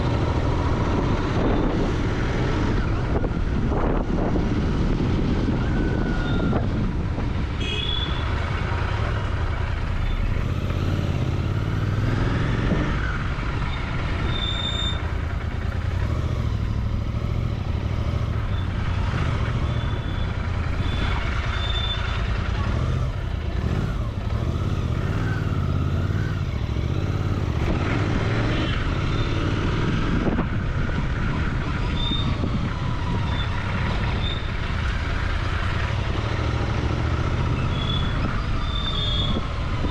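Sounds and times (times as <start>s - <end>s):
motorcycle engine running: 0.0s - 39.9s
road traffic: 0.0s - 39.9s.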